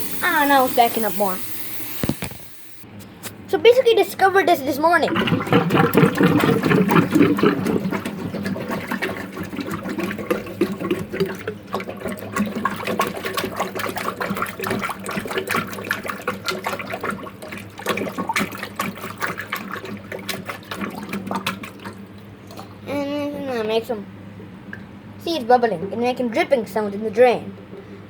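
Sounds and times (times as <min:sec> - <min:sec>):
water bubbling in a clogged drain: 0:04.8 - 0:22.8, 0:24.5 - 0:28.0
water drips: 0:05.0 - 0:22.8.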